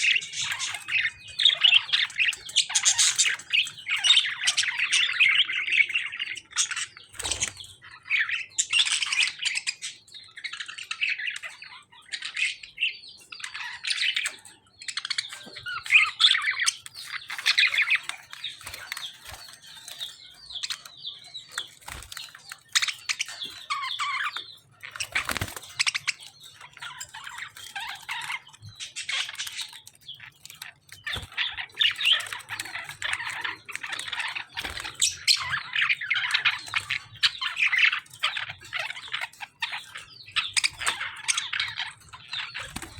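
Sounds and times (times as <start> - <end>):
small birds chirping and squawking: 0.0 - 42.9.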